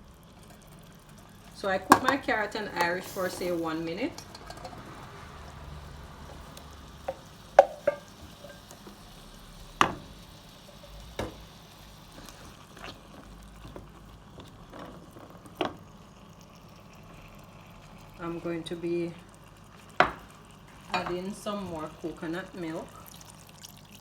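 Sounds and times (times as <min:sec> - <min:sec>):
vegetables sizzling in a pot: 0:00.0 - 0:24.0
spoon stirring and knocking pot: 0:01.8 - 0:03.5, 0:07.1 - 0:08.9.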